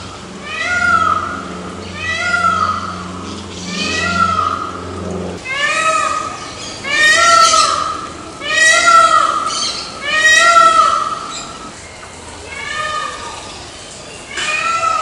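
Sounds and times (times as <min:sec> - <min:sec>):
peafowl wailing calls: 0:00.0 - 0:11.8.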